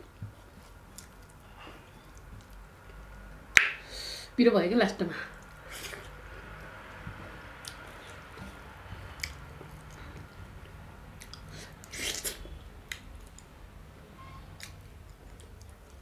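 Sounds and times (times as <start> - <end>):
chewing with wet mouth clicks: 0.9 - 3.7, 7.6 - 13.5, 14.6 - 16.0.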